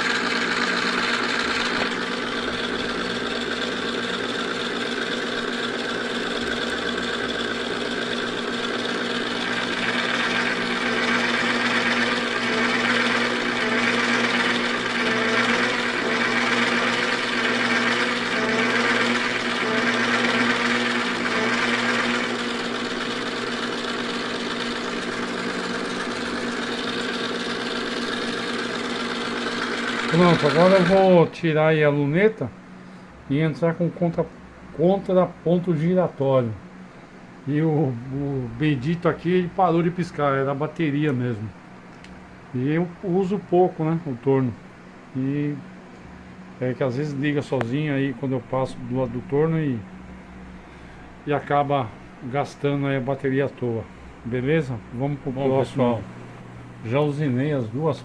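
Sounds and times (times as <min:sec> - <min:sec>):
lathe tool cutting workpiece: 0:00.0 - 0:31.3
lathe motor humming: 0:00.0 - 0:31.4, 0:51.2 - 0:58.0.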